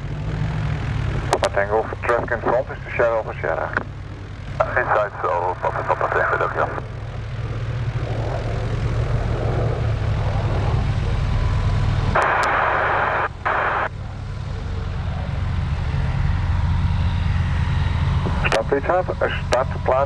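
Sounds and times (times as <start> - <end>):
propeller aircraft engine droning: 0.0 - 20.0
radio hiss: 1.3 - 3.9, 4.6 - 6.9, 12.1 - 13.9, 18.3 - 20.0.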